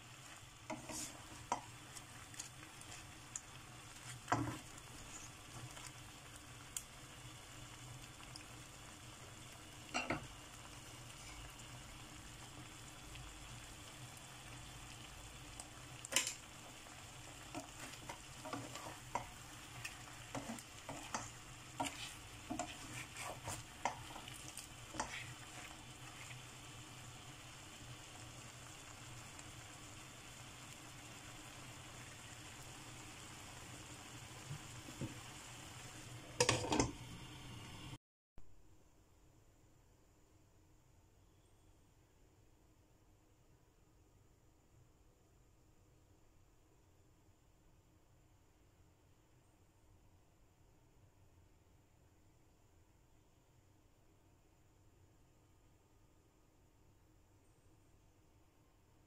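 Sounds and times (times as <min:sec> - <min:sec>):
food sizzling in a pan: 0:00.0 - 0:38.0
spatula knocking and scraping pan: 0:00.7 - 0:01.8, 0:04.2 - 0:04.7, 0:17.5 - 0:25.8, 0:36.4 - 0:37.0.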